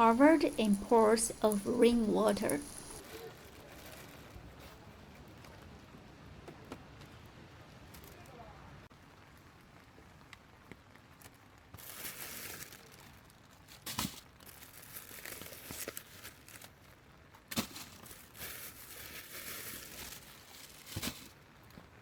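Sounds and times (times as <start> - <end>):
plastic crinkling and rustling: 0.0 - 4.8, 10.8 - 22.0.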